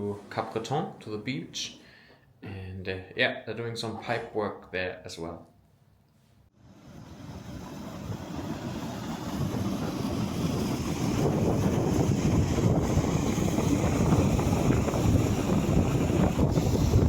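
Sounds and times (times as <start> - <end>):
wind buffeting microphone: 6.6 - 17.0.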